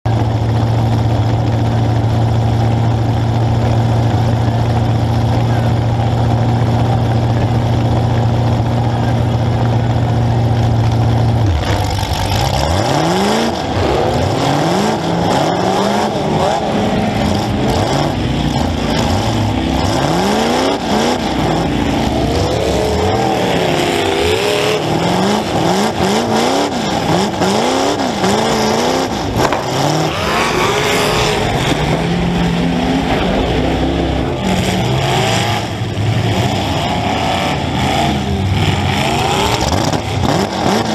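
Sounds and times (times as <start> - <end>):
car engine revving: 0.1 - 40.9.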